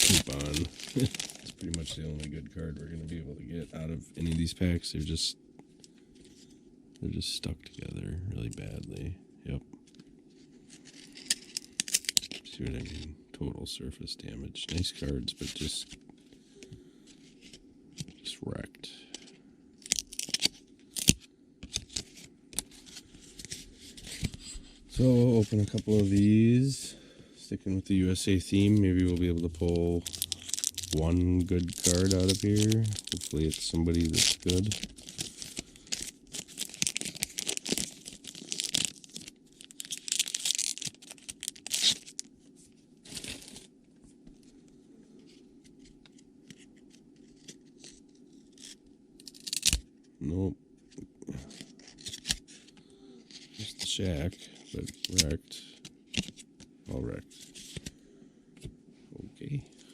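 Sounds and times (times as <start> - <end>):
card wrappers crinkling: 0.0 - 5.1, 10.6 - 13.0, 19.1 - 26.9, 27.9 - 42.3, 43.0 - 43.7, 51.5 - 52.7, 53.3 - 56.6.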